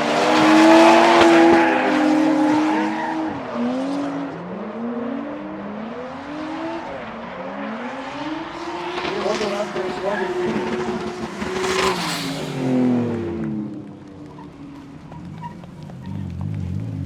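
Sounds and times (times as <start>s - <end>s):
car engines at high revs: 0.0s - 17.0s.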